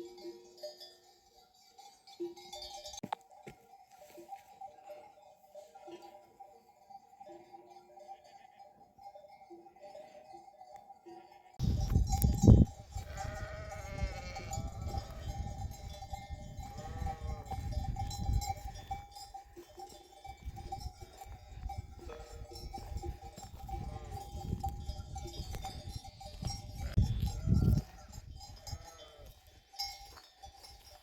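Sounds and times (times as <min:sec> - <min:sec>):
sheep bells clanking: 0:00.0 - 0:31.0
sheep bleating: 0:13.0 - 0:15.5, 0:16.6 - 0:17.7, 0:23.7 - 0:24.3, 0:27.0 - 0:29.4.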